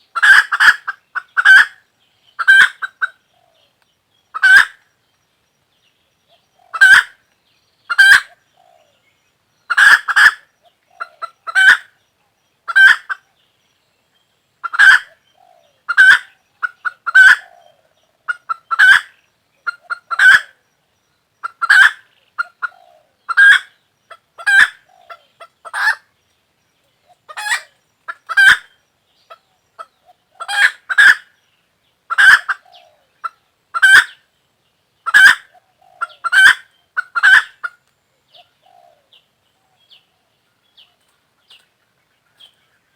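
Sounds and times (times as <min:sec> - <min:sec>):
chicken calling: 0:00.1 - 0:01.8, 0:02.4 - 0:03.2, 0:04.3 - 0:04.8, 0:06.7 - 0:07.2, 0:07.9 - 0:08.9, 0:09.7 - 0:11.9, 0:12.7 - 0:13.2, 0:14.6 - 0:20.6, 0:21.4 - 0:26.0, 0:27.2 - 0:28.7, 0:29.3 - 0:31.3, 0:32.1 - 0:34.2, 0:35.0 - 0:37.8.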